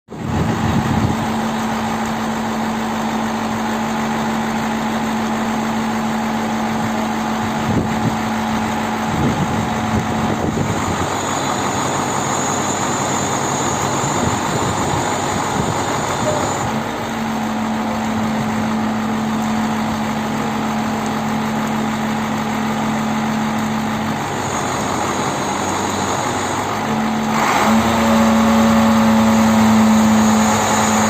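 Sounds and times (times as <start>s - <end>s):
engine idling: 0.1s - 31.0s.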